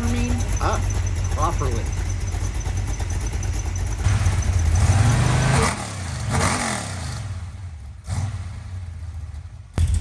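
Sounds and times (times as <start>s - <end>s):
engine running with throttle blips: 0.0s - 10.0s.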